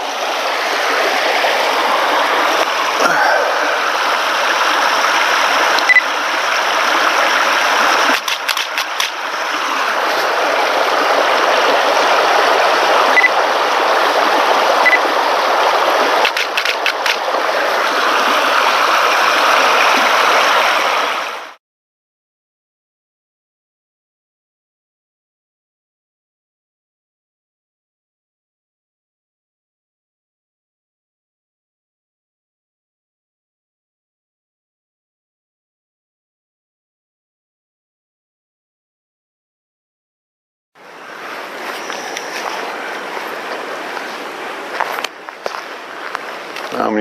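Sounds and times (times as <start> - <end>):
creek water rushing: 0.0 - 21.6, 40.8 - 47.0
camera shutter clicks: 8.1 - 9.2, 16.2 - 17.2.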